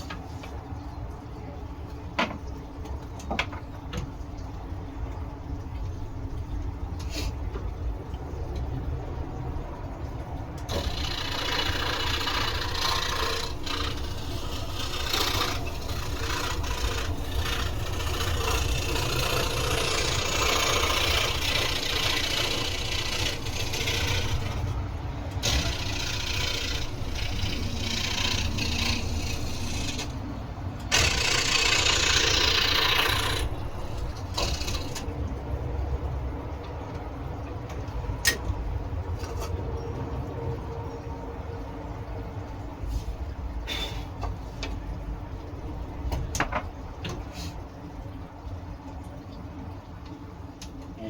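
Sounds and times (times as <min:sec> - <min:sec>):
saw blade cutting wood: 0:10.7 - 0:24.7, 0:25.4 - 0:30.1, 0:30.9 - 0:35.1
scroll saw motor hum: 0:10.7 - 0:30.2, 0:30.9 - 0:35.1.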